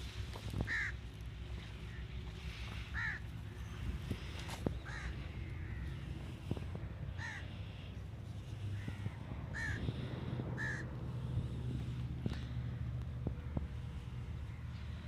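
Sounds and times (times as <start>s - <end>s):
low engine hum: 0.0s - 15.0s
crows cawing: 0.6s - 1.0s, 1.8s - 6.5s, 7.1s - 8.0s, 8.6s - 11.6s.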